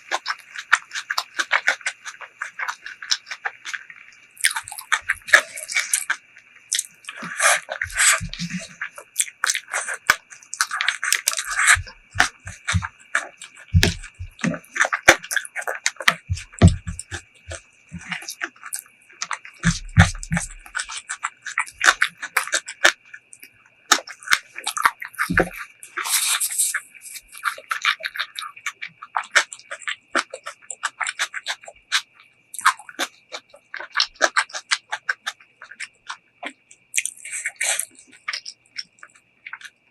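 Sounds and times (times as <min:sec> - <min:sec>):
lip smacks: 0:00.0 - 0:39.8
wet chewing: 0:00.0 - 0:39.9.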